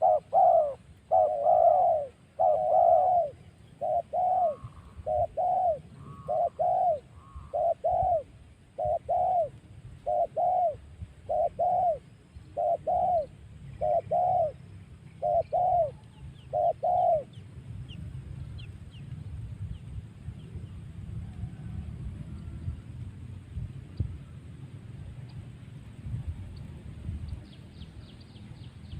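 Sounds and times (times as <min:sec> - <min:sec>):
dove cooing: 0:00.0 - 0:14.6, 0:15.2 - 0:17.4.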